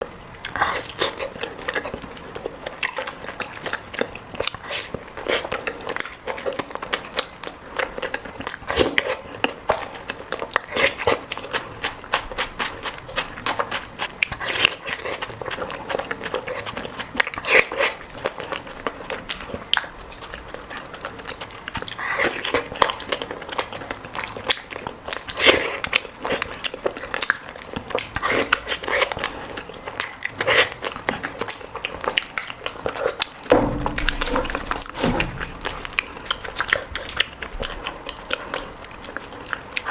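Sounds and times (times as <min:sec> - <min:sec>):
chewing and crunching: 0:00.0 - 0:39.9
wet mouth clicks: 0:21.0 - 0:39.9.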